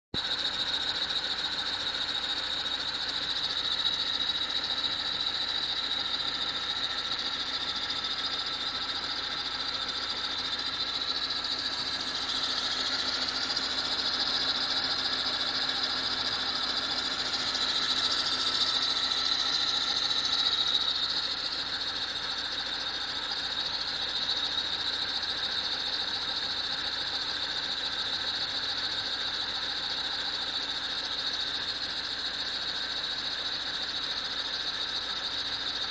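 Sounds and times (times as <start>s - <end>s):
engine running: 0.2s - 28.5s.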